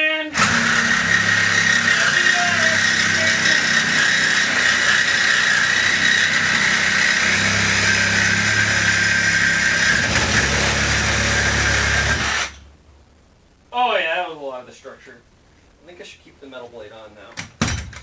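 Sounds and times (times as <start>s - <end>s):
reciprocating saw cutting metal: 0.4s - 12.6s.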